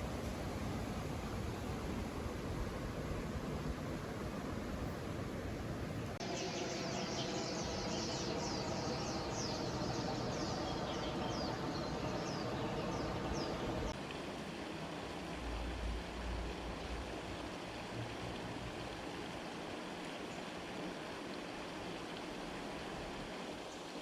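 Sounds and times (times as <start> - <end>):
creek water running: 0.0 - 24.0
bird calling downward-sweeping notes: 6.2 - 13.9.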